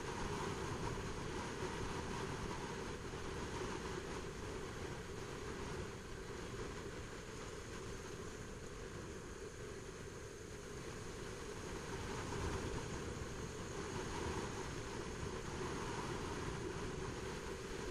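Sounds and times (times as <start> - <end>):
wind rush: 10.7 - 17.9.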